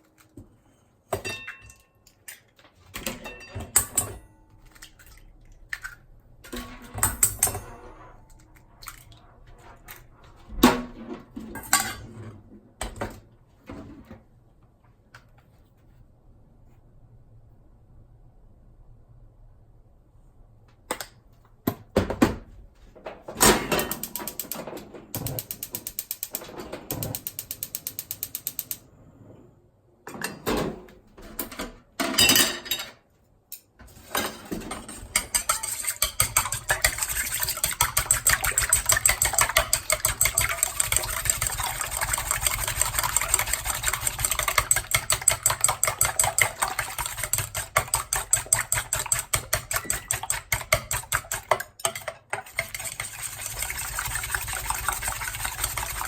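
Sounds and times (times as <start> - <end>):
whisk beating eggs in bowl: 25.2 - 28.7, 34.5 - 56.0.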